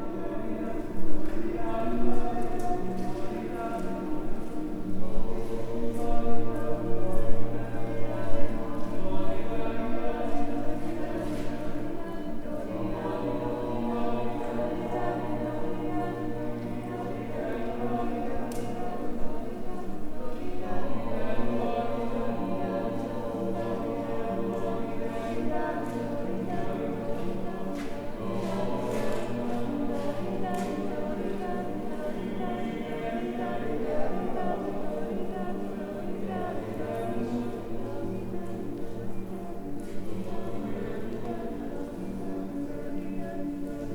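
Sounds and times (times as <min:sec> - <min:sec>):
choir singing in harmony: 0:00.0 - 0:43.9.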